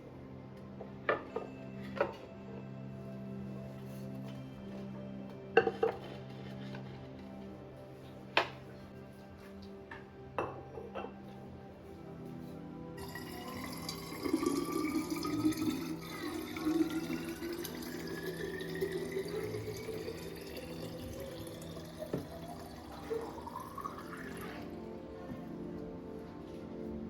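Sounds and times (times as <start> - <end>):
tap water filling container: 13.0 - 24.7.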